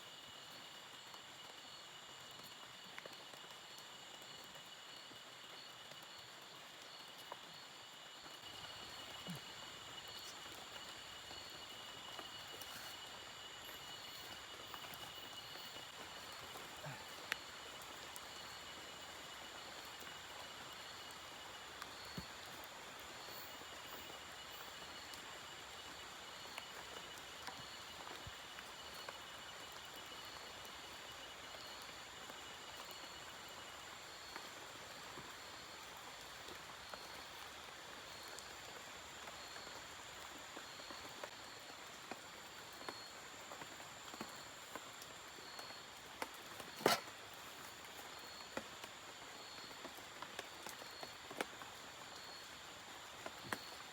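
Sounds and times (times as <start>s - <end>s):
insects droning: 0.0s - 53.9s
light rain hissing: 0.0s - 53.9s
pulsing insect call: 4.5s - 28.1s.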